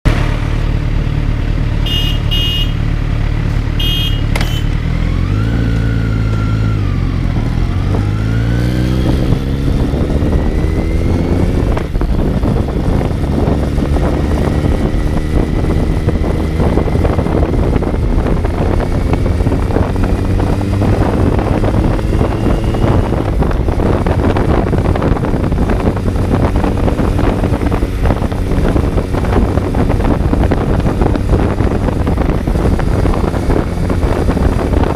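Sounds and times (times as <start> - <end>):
motorcycle engine revving: 0.1 - 34.9
short electronic beeps: 3.8 - 4.8, 22.4 - 23.1
wind noise: 5.3 - 34.9.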